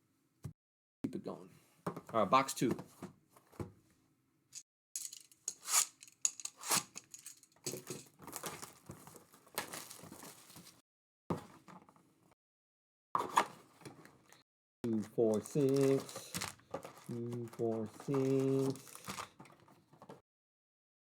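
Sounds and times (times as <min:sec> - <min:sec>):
plastic wrapping tearing and crinkling: 0:05.0 - 0:10.8, 0:15.4 - 0:19.4.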